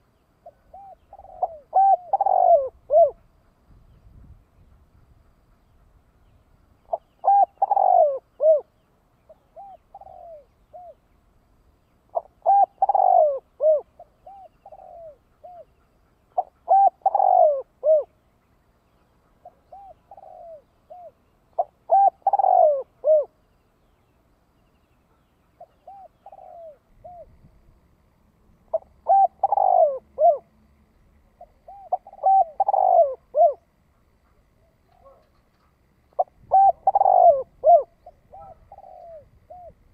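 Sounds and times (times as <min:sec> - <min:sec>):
dove cooing: 0:00.0 - 0:03.5, 0:06.9 - 0:11.1, 0:12.1 - 0:18.2, 0:19.2 - 0:23.4, 0:25.6 - 0:27.4, 0:28.7 - 0:30.5, 0:31.4 - 0:39.9.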